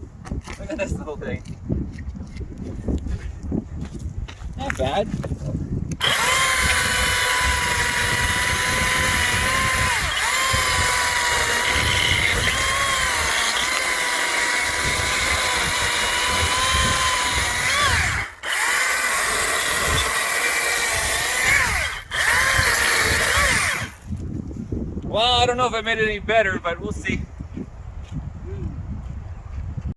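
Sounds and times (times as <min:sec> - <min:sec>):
chainsaw cutting wood: 0:05.9 - 0:24.3.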